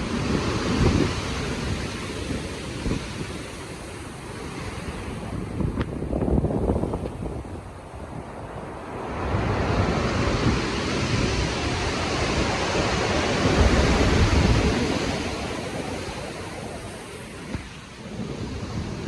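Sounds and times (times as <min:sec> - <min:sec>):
ocean wave breaking: 0:00.0 - 0:19.0
wind over water: 0:00.0 - 0:19.0.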